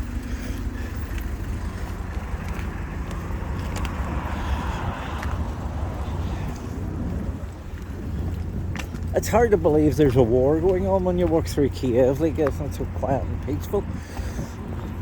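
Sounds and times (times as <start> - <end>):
car passing by: 0.0 - 8.0
steady low traffic rumble: 0.0 - 15.0.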